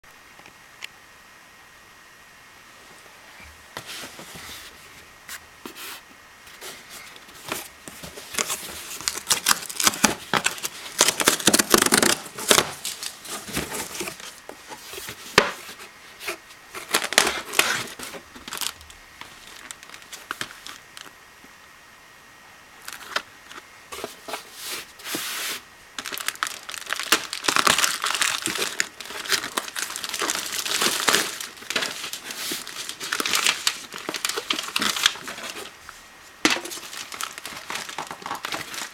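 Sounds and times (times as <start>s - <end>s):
packaging crinkling and tearing: 6.5s - 21.1s, 22.8s - 25.2s, 26.0s - 38.9s.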